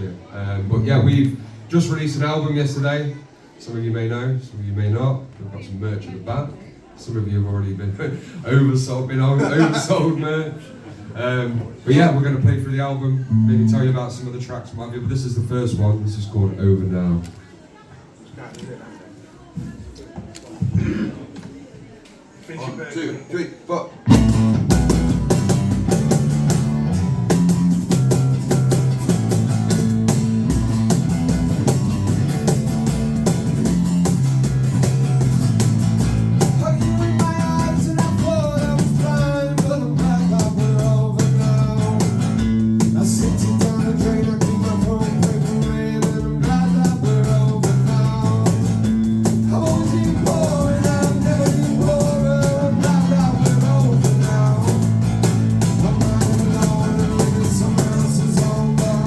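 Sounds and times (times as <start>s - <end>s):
rock band playing: 24.1s - 59.0s
person singing: 36.5s - 42.2s, 42.9s - 55.0s, 55.6s - 59.0s.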